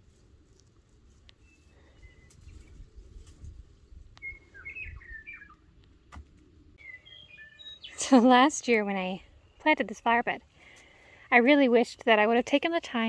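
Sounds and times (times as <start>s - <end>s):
birds chirping: 1.3s - 2.9s, 3.9s - 12.6s.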